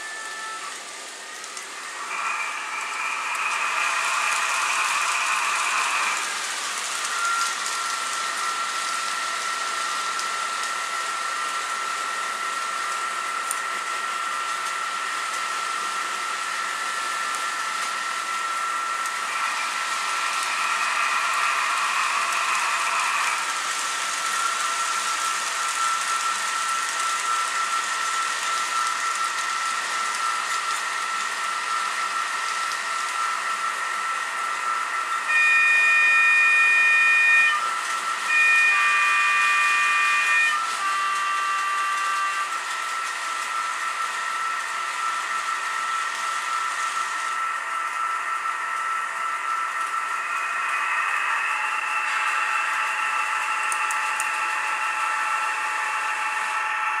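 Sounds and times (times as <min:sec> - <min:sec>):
two-tone horn call: 0:35.2 - 0:42.8
locomotive horn blasts: 0:35.2 - 0:43.0
diesel engine sound drone: 0:36.6 - 0:57.0.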